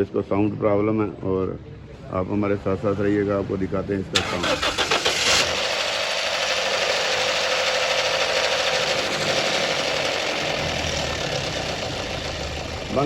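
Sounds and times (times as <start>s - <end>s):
car engine clattering: 4.2s - 13.0s.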